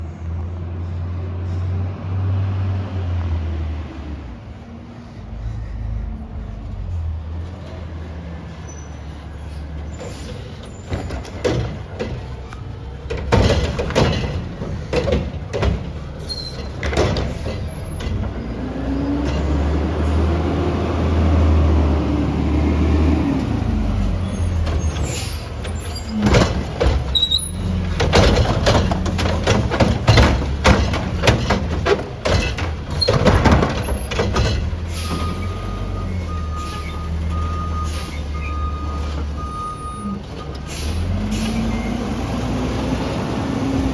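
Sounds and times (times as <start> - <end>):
garbage truck engine drone: 0.0 - 43.9
recycling clanking and banging: 9.8 - 20.4, 23.4 - 42.6.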